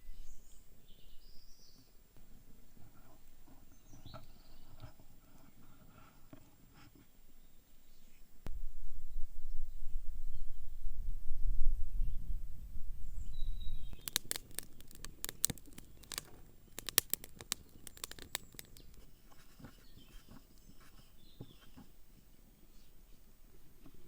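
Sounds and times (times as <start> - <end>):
faint bird chirps: 0.0 - 5.6, 11.8 - 14.2
sharp irregular clicks and taps: 14.0 - 19.1.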